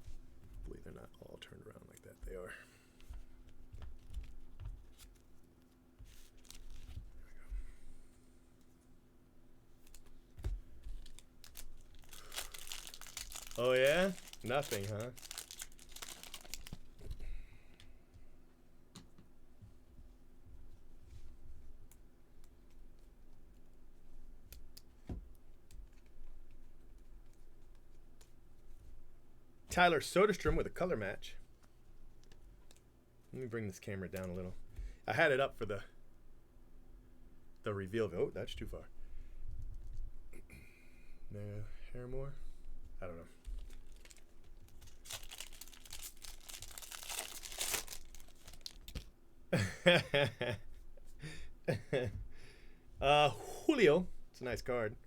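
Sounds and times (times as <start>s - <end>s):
low steady hum: 0.0s - 55.0s
foil wrapper tearing and crinkling: 6.2s - 6.9s, 11.0s - 17.0s, 43.6s - 49.1s.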